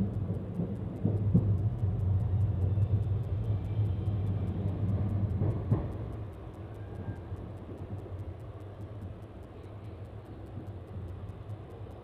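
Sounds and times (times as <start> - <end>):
train wheels rumbling on rails: 0.0 - 9.2.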